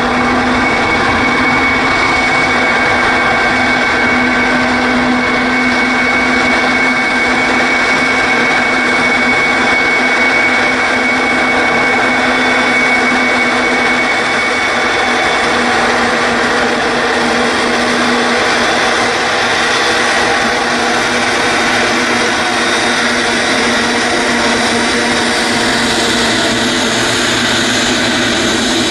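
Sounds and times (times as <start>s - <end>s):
high engine whine: 0.0s - 28.9s
jet engines running: 0.0s - 28.9s.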